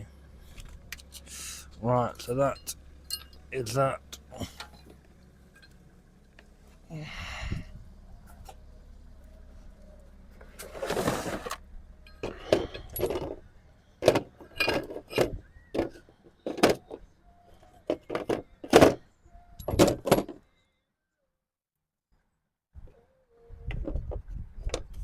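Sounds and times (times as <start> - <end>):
metal tools clinking and knocking: 2.2 - 5.8, 12.0 - 13.4, 14.0 - 17.0.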